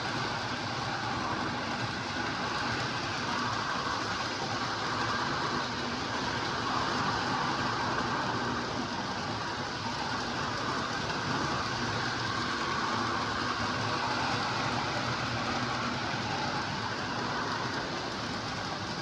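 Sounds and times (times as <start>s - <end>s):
model train motors humming: 0.0s - 19.0s
wheels rumbling on rails: 0.0s - 19.0s.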